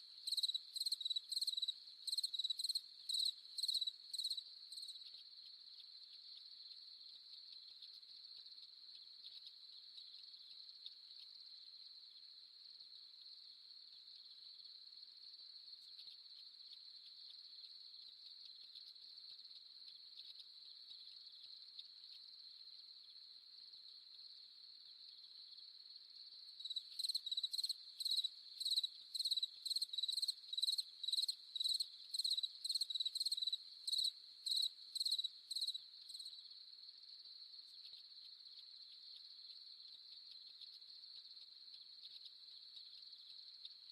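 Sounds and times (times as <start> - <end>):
crickets trilling: 0.0 - 5.1, 26.4 - 36.6
close cricket chirping: 0.0 - 43.9.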